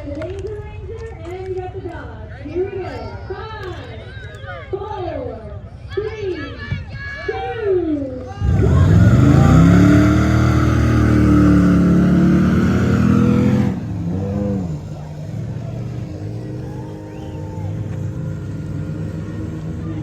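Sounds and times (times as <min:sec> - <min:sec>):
truck engine revving: 0:08.3 - 0:20.0.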